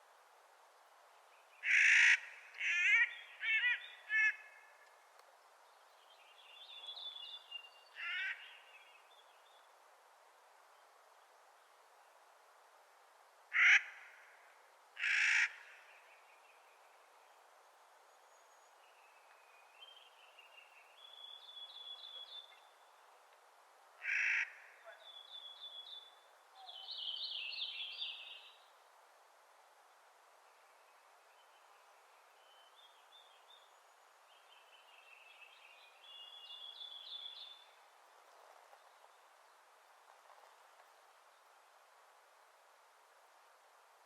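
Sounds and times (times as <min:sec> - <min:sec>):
background hiss: 0:00.0 - 0:44.0.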